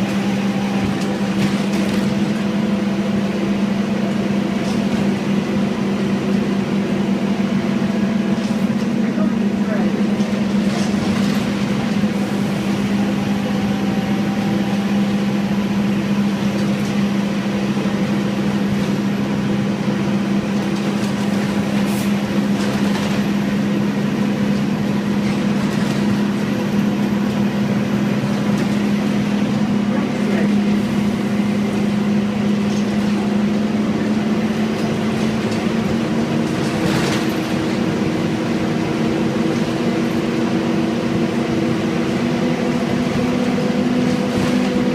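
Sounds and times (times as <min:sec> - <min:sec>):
bus diesel engine running: 0:00.0 - 0:44.9.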